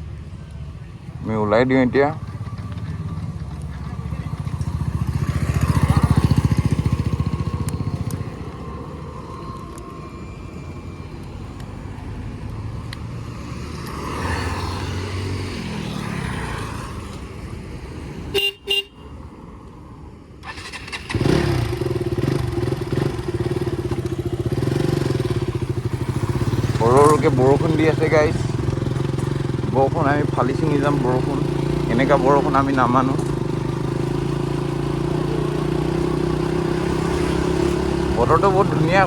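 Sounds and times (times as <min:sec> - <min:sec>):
motorcycle engine running: 0:00.0 - 0:08.6, 0:20.5 - 0:39.0
horn toots: 0:18.3 - 0:19.1.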